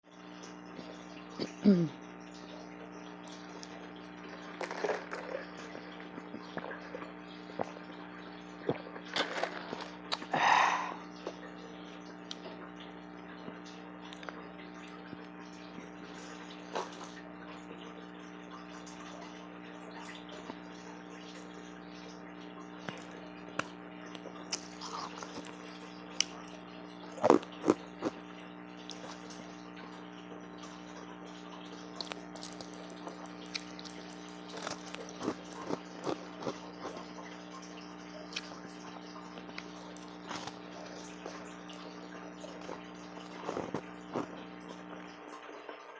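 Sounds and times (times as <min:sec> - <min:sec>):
steady low hum: 0:00.0 - 0:45.9
ice crunching and crackling: 0:32.0 - 0:37.0, 0:39.5 - 0:40.6, 0:42.5 - 0:44.4.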